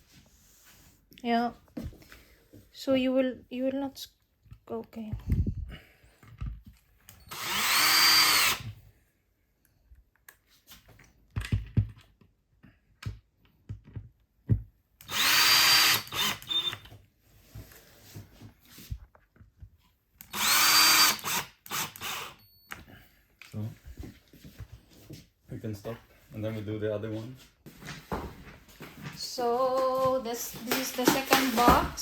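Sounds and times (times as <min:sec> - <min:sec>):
knocks and clicks of handling parts: 0:06.2 - 0:07.2, 0:10.2 - 0:14.8
drill motor whine: 0:07.2 - 0:08.7, 0:15.1 - 0:16.9, 0:20.3 - 0:22.4.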